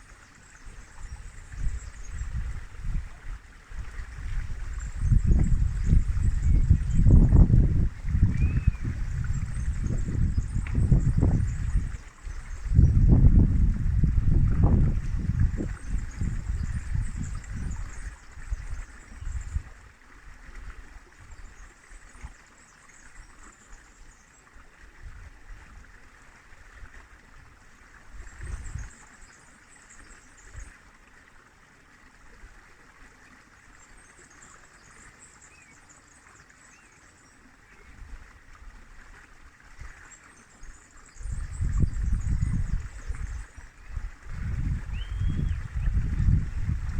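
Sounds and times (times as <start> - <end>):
river water flowing: 0.0 - 46.9
wind gusts on microphone: 0.9 - 19.8, 28.1 - 28.9, 41.1 - 46.9.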